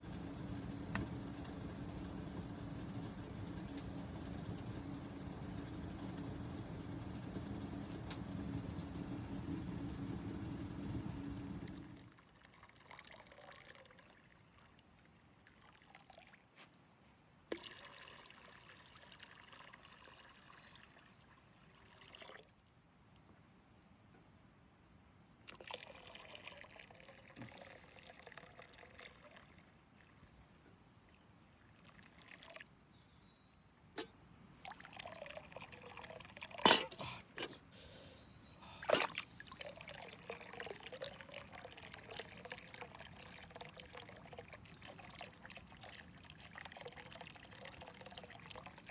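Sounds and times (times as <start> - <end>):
steady low hum: 0.0 - 12.0
shower water pouring: 34.7 - 37.0, 38.9 - 48.9.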